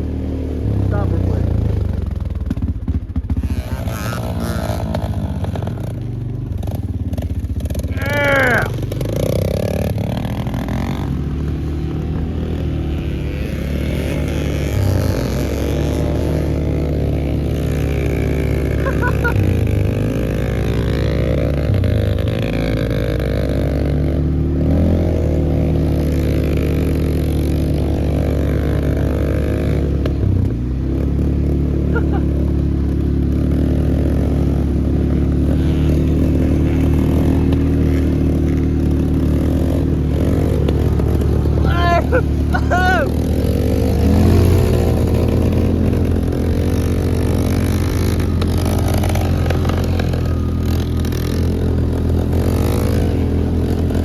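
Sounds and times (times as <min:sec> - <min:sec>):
motorbike engine running: 0:00.0 - 0:54.0.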